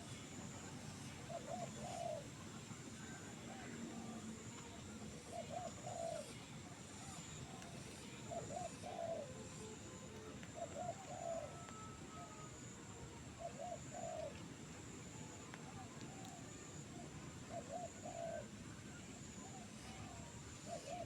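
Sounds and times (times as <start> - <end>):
dove cooing: 0.0 - 21.0
faint high-pitched whine: 0.0 - 21.0.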